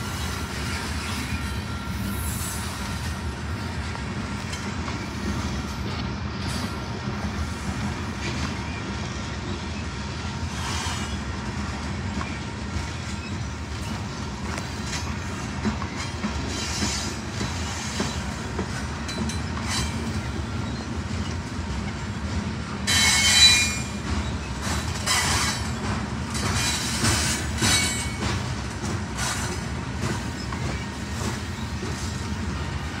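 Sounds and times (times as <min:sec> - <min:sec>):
train wheels rumbling and clattering: 0:00.0 - 0:33.0
high-pitched wheel squeals: 0:22.9 - 0:25.7.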